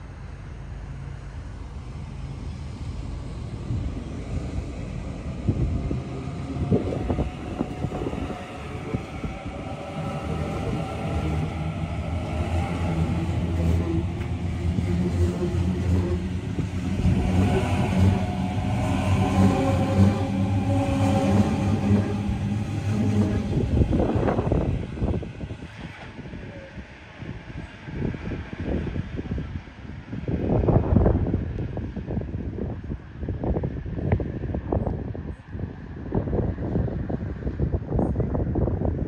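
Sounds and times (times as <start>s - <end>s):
train rumbling: 0.0s - 39.0s
humming tones: 1.5s - 26.3s.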